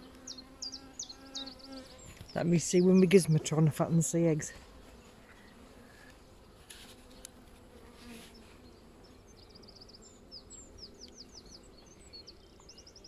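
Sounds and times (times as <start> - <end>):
small bird chirping: 0.0 - 3.2, 8.3 - 13.0
honeybees humming: 0.0 - 13.0.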